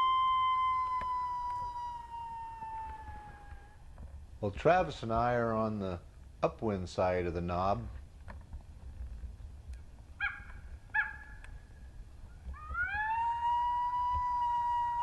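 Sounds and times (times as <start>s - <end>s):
coyote howl: 0.0s - 3.8s, 12.5s - 15.0s
coyote yips: 0.0s - 3.8s, 10.2s - 11.4s.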